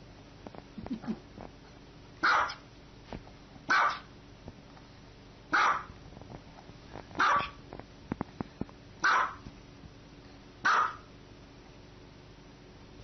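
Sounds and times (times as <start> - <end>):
small dog barking: 2.2 - 2.7, 3.7 - 4.1, 5.5 - 6.0, 7.2 - 7.6, 9.0 - 9.4, 10.6 - 11.1.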